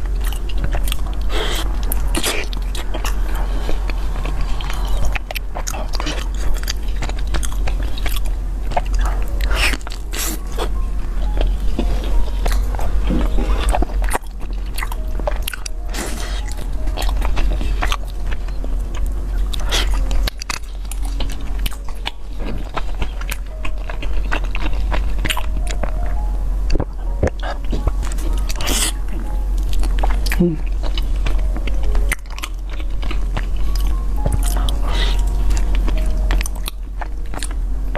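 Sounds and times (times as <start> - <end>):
chewing and biting food: 0.0 - 37.9.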